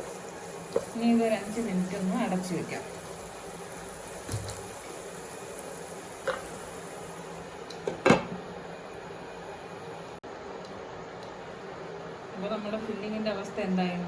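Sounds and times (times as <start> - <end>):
food sizzling in a pan: 0.0 - 10.2.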